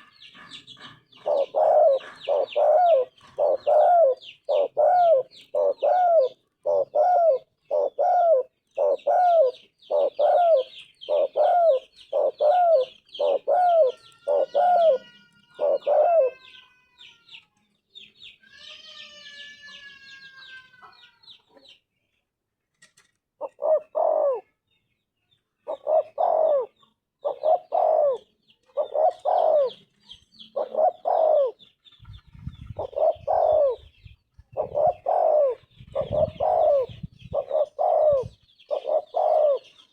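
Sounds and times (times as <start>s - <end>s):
dove cooing: 0.0s - 16.5s, 23.4s - 24.5s, 25.6s - 29.9s, 30.5s - 31.6s, 32.3s - 39.8s
faint high bird chirping: 0.0s - 22.3s.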